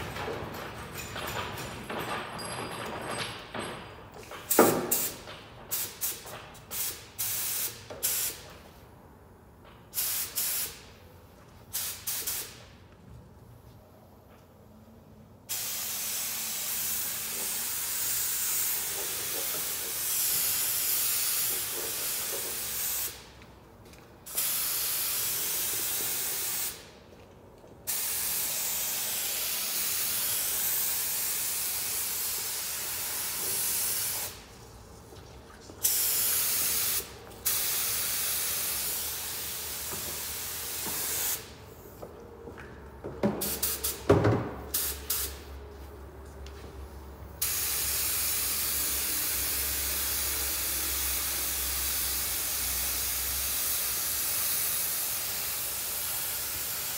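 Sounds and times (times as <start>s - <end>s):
paint spray gun hissing: 15.5s - 23.3s, 24.3s - 26.9s, 27.9s - 34.4s, 35.8s - 41.5s, 47.4s - 56.9s.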